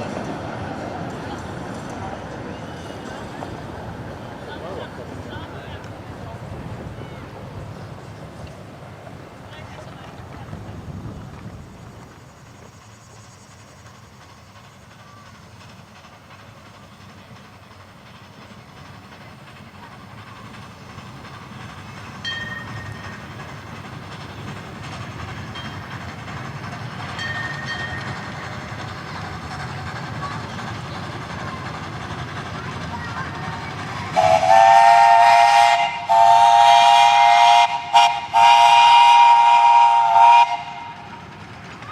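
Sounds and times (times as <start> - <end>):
steam train wheels clattering: 0.0 - 41.9
steam whistle blasts: 34.2 - 41.1.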